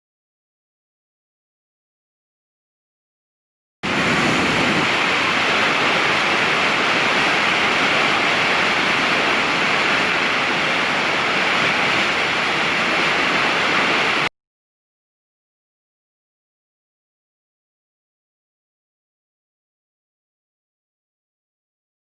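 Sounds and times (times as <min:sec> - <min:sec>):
rushing water: 0:03.8 - 0:14.3.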